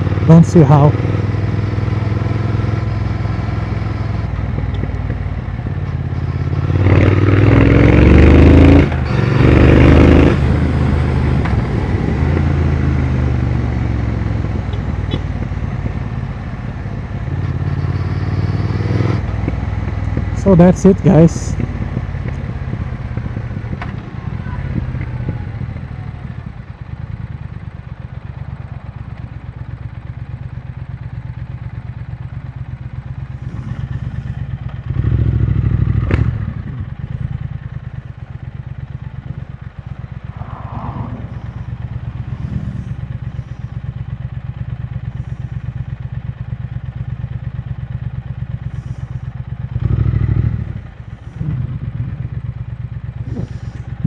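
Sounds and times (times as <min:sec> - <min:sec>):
motorcycle engine idling: 0:00.0 - 0:06.8, 0:19.4 - 0:54.0.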